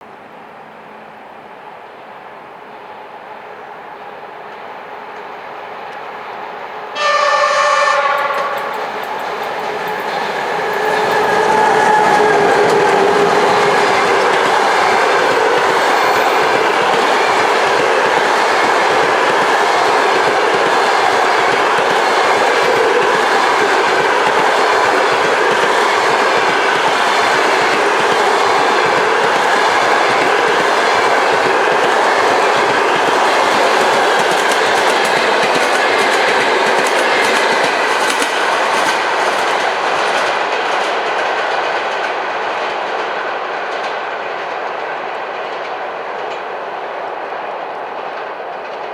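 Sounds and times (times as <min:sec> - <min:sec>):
train coaches rumbling: 0:00.0 - 0:48.9
wheels clacking over rail joints: 0:08.0 - 0:46.6.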